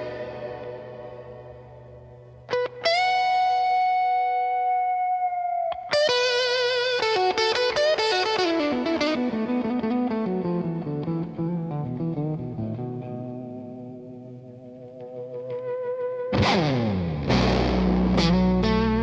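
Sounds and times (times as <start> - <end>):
distorted electric guitar solo: 0.0 - 19.0.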